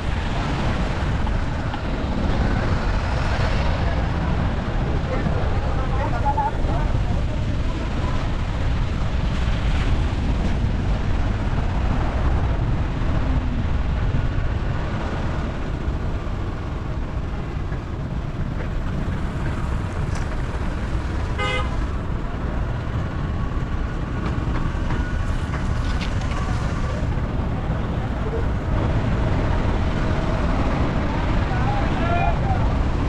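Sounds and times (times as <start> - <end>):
vehicle driving rumble: 0.0 - 33.0.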